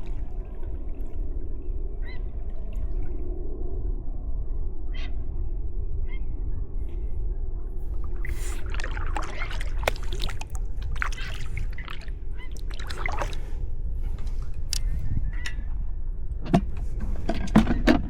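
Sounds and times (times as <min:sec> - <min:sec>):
steady low rumble: 0:00.0 - 0:18.0
paddle splashing in water: 0:08.1 - 0:13.6
water trickling off paddle: 0:08.2 - 0:13.4.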